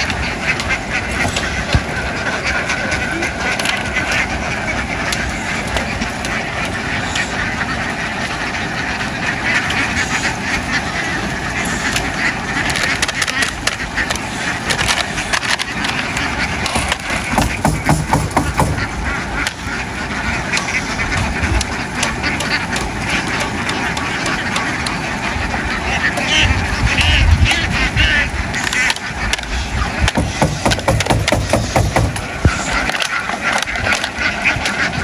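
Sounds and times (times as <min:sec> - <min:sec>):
ducks quacking: 0:00.0 - 0:35.0
sharp clicks and knocks: 0:16.6 - 0:19.6, 0:30.0 - 0:33.1.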